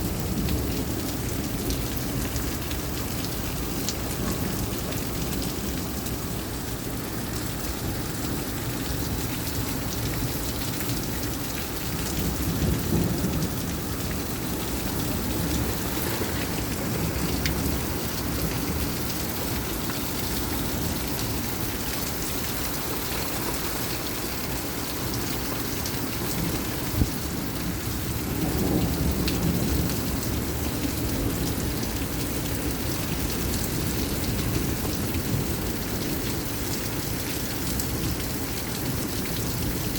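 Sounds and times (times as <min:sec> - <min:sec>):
heavy rain falling: 0:00.0 - 0:39.9
low thunder rumbling: 0:11.0 - 0:22.1.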